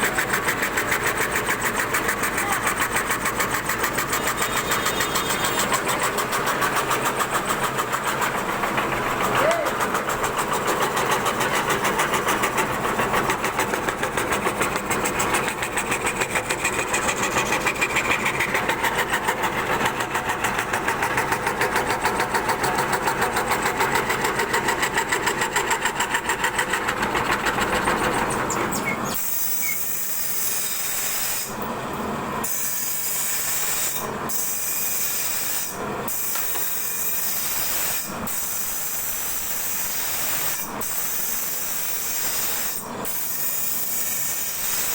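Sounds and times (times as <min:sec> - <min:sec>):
router running with pulsing throb: 0:00.0 - 0:31.7.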